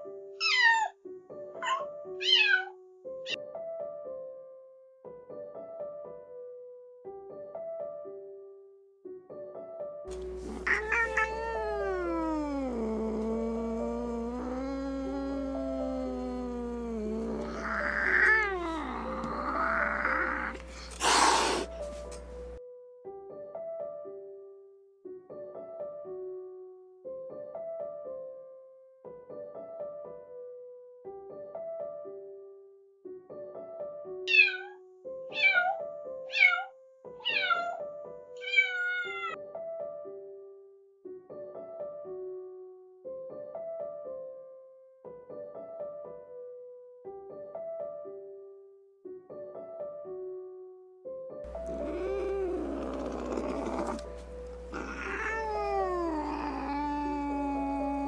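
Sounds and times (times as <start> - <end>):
gentle piano music: 0.0 - 58.0
kitten meowing: 0.4 - 0.9, 1.6 - 2.7, 10.4 - 21.7, 34.3 - 37.8, 38.4 - 39.4, 51.5 - 58.0
cat crying loudly: 0.4 - 1.0, 1.6 - 2.7, 10.5 - 21.7, 34.3 - 37.8, 38.4 - 39.4, 51.6 - 54.1, 54.7 - 58.0.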